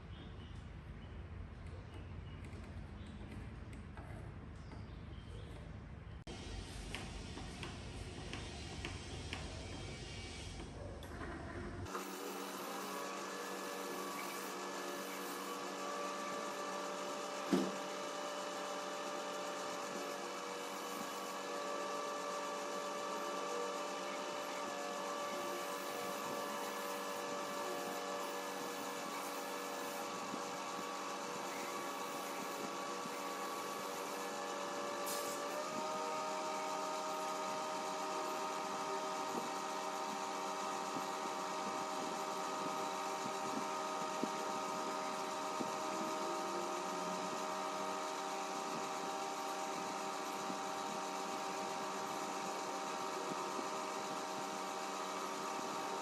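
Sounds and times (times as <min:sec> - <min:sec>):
small electric motor humming: 0:11.8 - 0:56.0.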